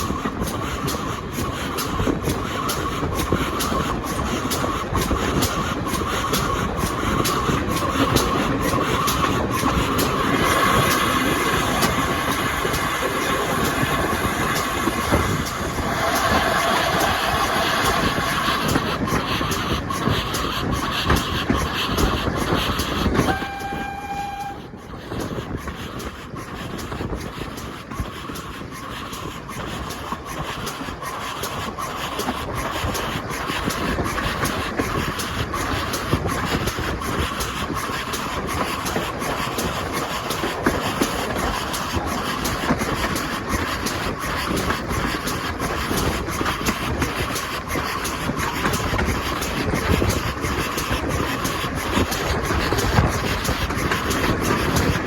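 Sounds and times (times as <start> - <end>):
train rumbling on track: 0.0 - 55.0.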